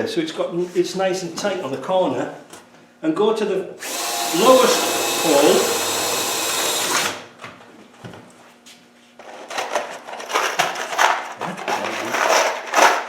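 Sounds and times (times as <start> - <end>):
electric drill drilling sheet metal: 3.8 - 7.3
metal parts rattling and clattering: 9.2 - 13.0.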